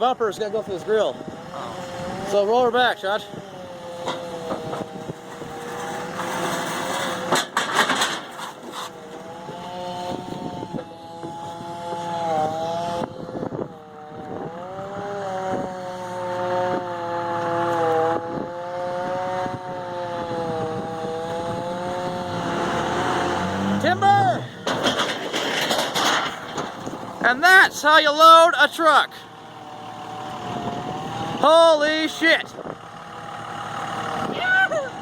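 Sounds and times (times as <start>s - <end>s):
truck engine pulling under load: 0.5s - 35.0s
knocks and scraping: 3.2s - 13.0s, 20.4s - 27.9s.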